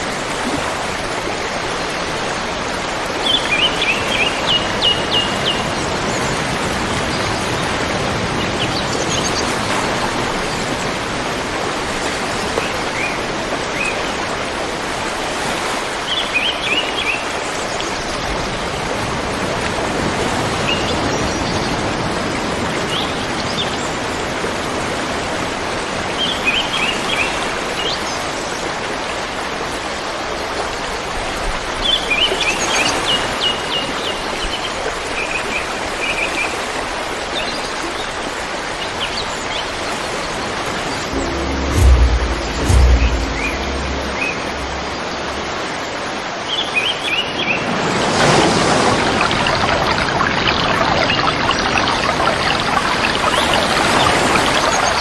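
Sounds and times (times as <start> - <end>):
river water rushing: 48.2 - 55.0.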